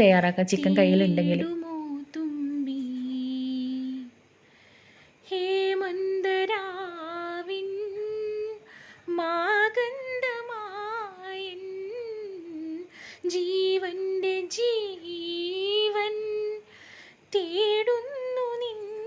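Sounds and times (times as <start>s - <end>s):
woman humming: 0.5s - 4.1s.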